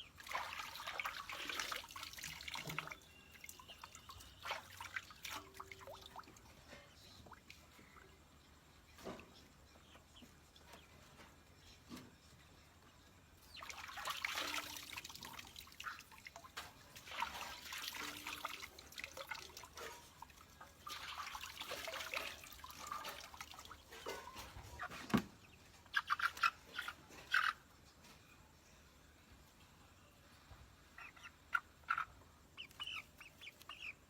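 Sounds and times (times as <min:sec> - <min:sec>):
water splashing and trickling: 0:00.0 - 0:09.3, 0:13.4 - 0:27.4.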